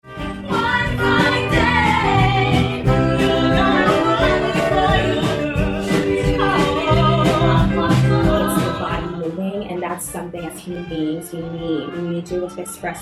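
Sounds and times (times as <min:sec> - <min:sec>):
band with bass and drums: 0:00.0 - 0:09.2
woman singing pop song: 0:00.1 - 0:13.0.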